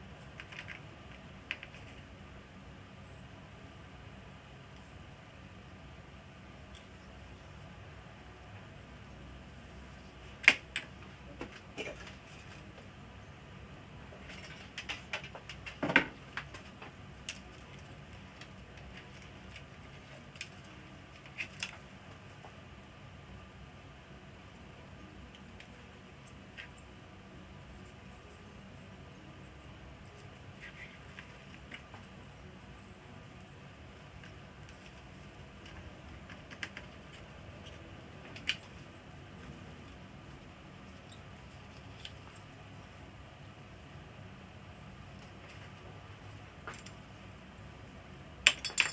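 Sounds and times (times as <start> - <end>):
faint steady hum: 0.0 - 48.9
small hard parts clicking: 48.4 - 48.9.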